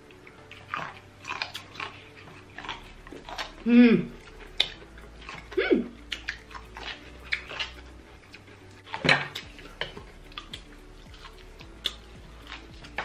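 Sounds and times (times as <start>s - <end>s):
chewing corn with wet smacks: 0.0s - 13.0s.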